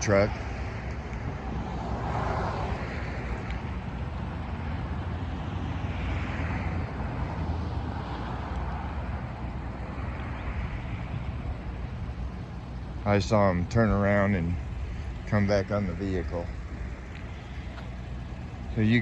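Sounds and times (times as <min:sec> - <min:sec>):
road vehicle rumble and hiss: 0:00.0 - 0:19.0.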